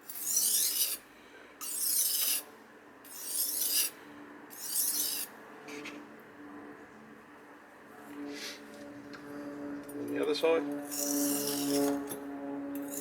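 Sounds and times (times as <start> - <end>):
knife grinding on whetstone: 0.0 - 1.0, 1.6 - 2.5, 3.1 - 5.9, 10.8 - 12.2, 12.8 - 13.0.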